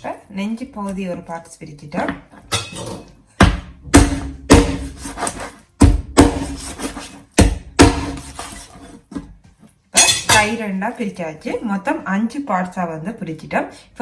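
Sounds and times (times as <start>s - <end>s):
knife chopping on cutting board: 3.4s - 8.8s.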